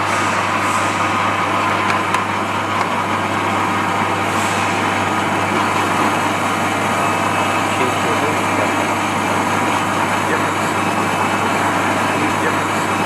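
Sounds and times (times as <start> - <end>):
machine motor humming: 1.2 - 13.0.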